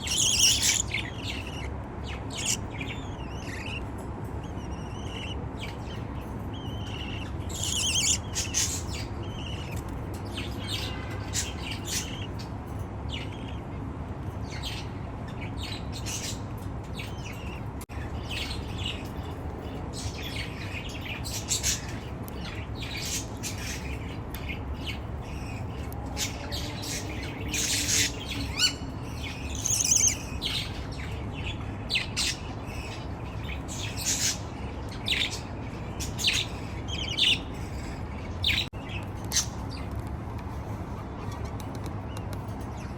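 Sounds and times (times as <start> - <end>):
budgerigar chicks squawking: 0.0 - 10.0, 19.8 - 39.7.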